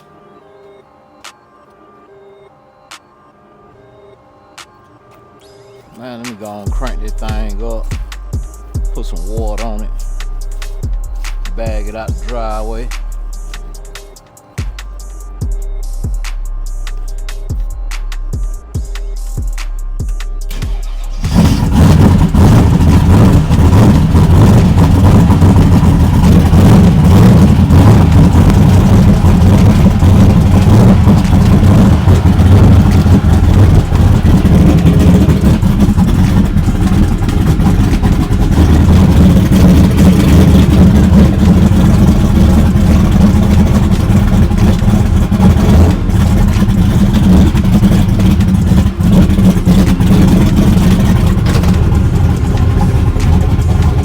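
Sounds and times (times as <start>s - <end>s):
car engine rumbling loudly: 6.0s - 54.0s.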